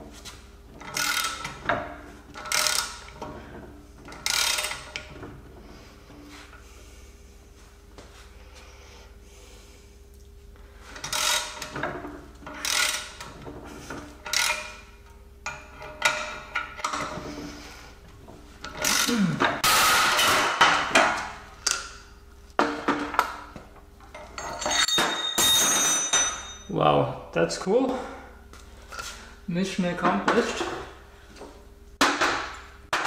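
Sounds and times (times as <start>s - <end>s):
tools scraping and clanking on metal: 15.5s - 20.4s, 24.0s - 26.7s.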